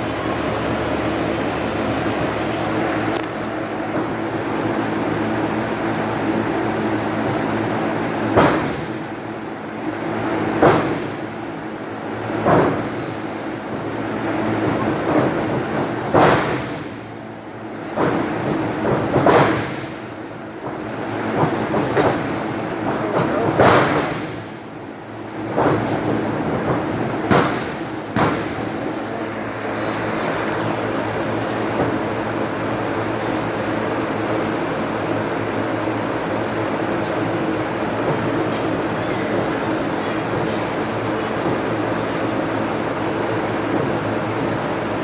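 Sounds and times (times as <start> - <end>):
steady hum: 0.0 - 45.0
heavy thuds on wrestling ring: 25.6 - 28.8.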